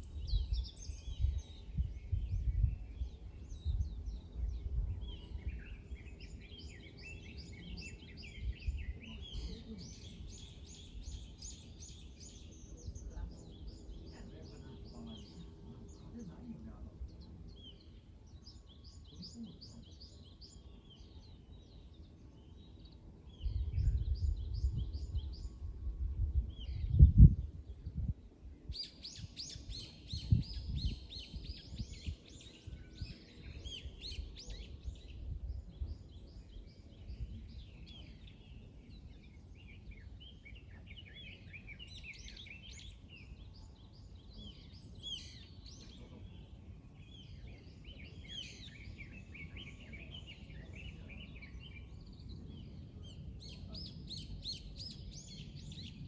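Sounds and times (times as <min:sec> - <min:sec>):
songbirds chirping: 0:00.0 - 0:56.0
low rumble: 0:23.4 - 0:28.3.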